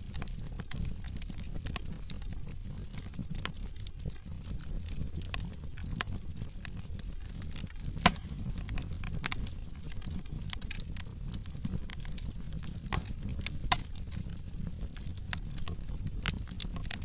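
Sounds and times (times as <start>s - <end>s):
low rumble of flames: 0.0s - 17.0s
wood fire crackling: 0.0s - 17.0s.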